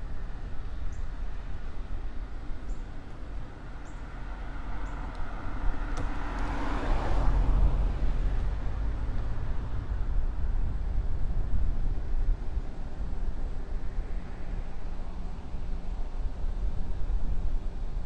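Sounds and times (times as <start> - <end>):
car passing: 3.6 - 11.1
steady low rumble: 7.3 - 18.0.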